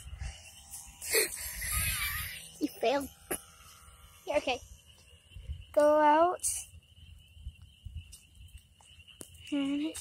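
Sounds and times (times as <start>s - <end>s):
small electric motor whining: 0.0s - 6.9s
wind rumbling on microphone: 0.0s - 10.0s.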